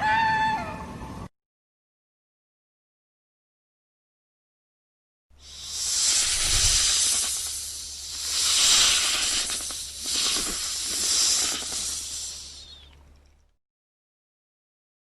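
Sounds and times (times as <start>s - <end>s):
animal hissing: 5.4s - 13.0s.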